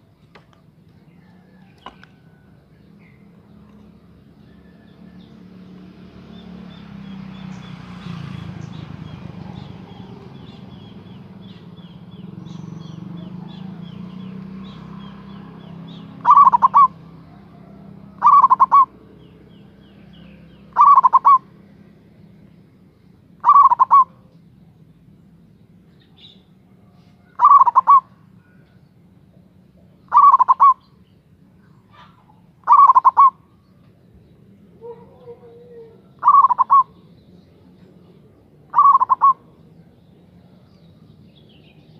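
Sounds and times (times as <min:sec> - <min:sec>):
dove cooing: 0:08.4 - 0:19.6, 0:20.3 - 0:21.6, 0:23.4 - 0:24.3, 0:27.2 - 0:28.7, 0:29.8 - 0:30.8, 0:31.9 - 0:33.5, 0:34.7 - 0:39.6.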